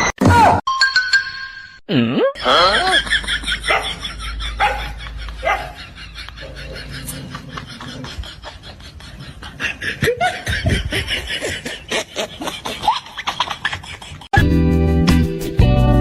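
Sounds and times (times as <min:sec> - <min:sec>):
person laughing: 0:01.9 - 0:14.4.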